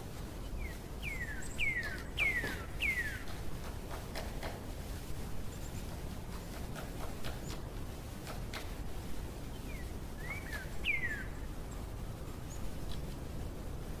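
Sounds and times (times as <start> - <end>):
bird chirping: 0.4 - 3.4, 9.5 - 13.0
faint clicks: 12.9 - 13.1.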